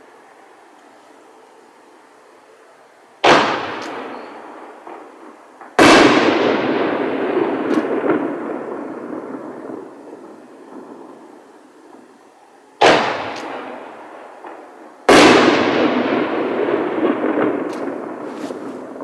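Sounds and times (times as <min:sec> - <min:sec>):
rumble after bangs: 0:03.2 - 0:12.2, 0:12.8 - 0:19.0.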